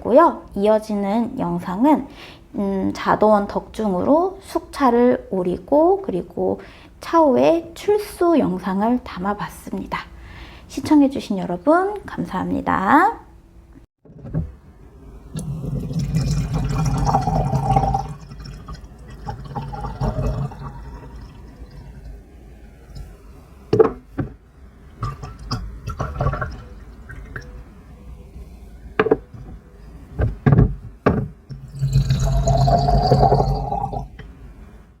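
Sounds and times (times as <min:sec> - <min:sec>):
liquid pouring into vessel: 0:15.3 - 0:22.2, 0:31.5 - 0:34.2
liquid trickling: 0:15.3 - 0:23.2, 0:24.9 - 0:27.7, 0:31.5 - 0:34.2.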